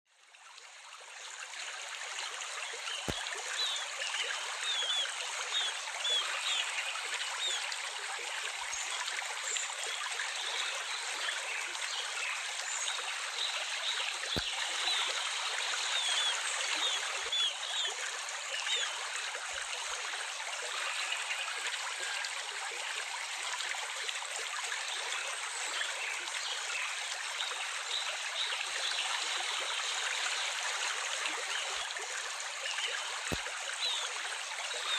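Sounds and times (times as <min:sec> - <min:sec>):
water trickling: 0:00.2 - 0:34.9.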